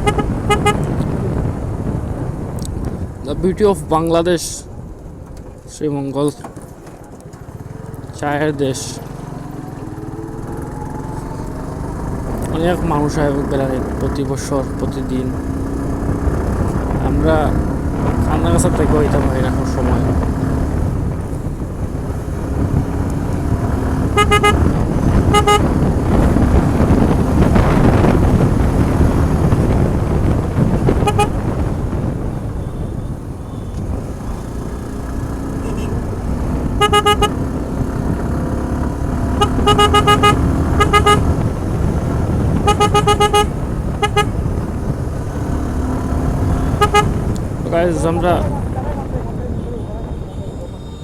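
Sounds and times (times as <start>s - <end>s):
vehicle horn short beeps: 0.0s - 0.9s, 24.1s - 25.8s, 31.0s - 31.4s, 35.6s - 36.0s, 36.8s - 37.4s, 39.4s - 41.4s, 42.6s - 44.4s, 46.6s - 47.2s
motorcycle engine and road noise: 0.0s - 51.0s.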